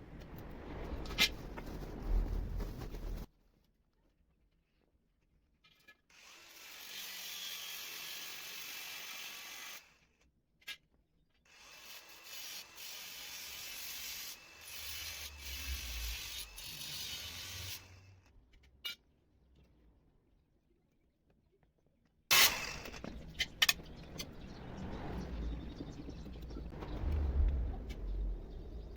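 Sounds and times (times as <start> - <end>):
tool rasping metal: 11.5 - 18.1
low hum: 22.5 - 28.9.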